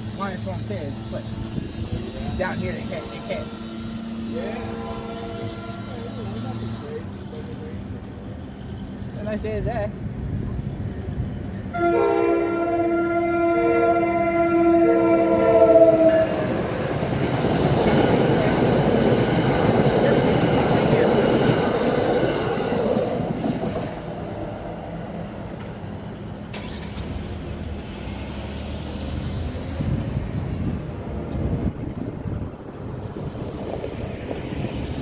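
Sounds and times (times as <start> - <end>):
train horn: 2.7 - 7.2, 11.7 - 16.6
train wheels on rails: 15.2 - 35.0.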